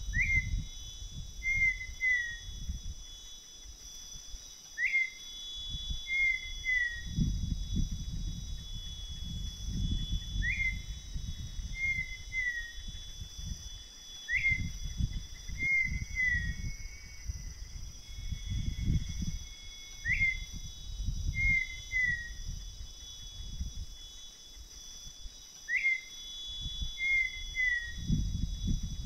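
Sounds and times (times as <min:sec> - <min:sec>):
high-pitched insect buzz: 0:00.0 - 0:29.0
bird whistling: 0:00.1 - 0:00.7, 0:01.4 - 0:02.6, 0:04.8 - 0:07.3, 0:09.9 - 0:13.0, 0:14.2 - 0:17.2, 0:19.9 - 0:20.6, 0:21.3 - 0:22.6, 0:25.6 - 0:26.2, 0:26.8 - 0:28.1.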